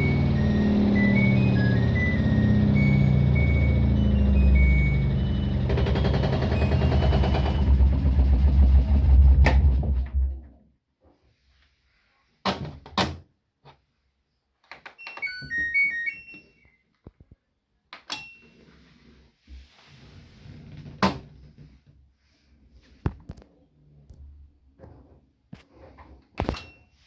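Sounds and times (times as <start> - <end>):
electronic beeping tune: 0.0 - 7.7, 15.1 - 16.8
washing machine motor rumbling: 0.0 - 10.4.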